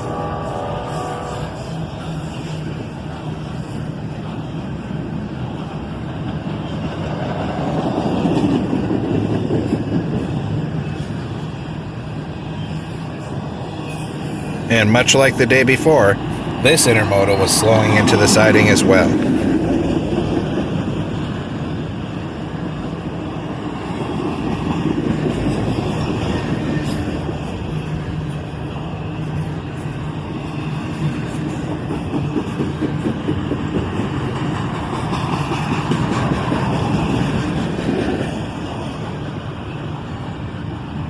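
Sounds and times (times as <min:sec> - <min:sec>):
train wheels rumbling on rail: 0:00.0 - 0:41.0
clicks of train wheels: 0:29.3 - 0:39.3.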